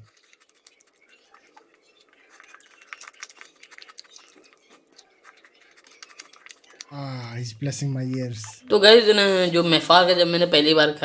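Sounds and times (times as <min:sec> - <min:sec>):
biscuit being crunched and chewed: 0:00.0 - 0:07.0.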